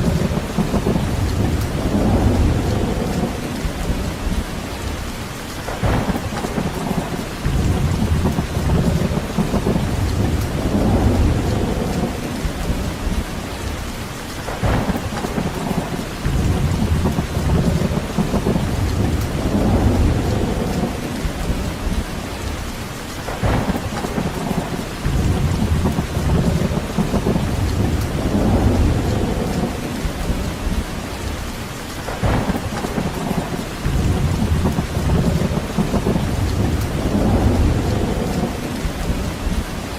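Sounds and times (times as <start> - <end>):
low rumbling: 0.0 - 5.0, 6.9 - 13.6, 15.7 - 22.3, 24.4 - 31.4, 33.2 - 39.9
heavy rain: 0.0 - 39.9.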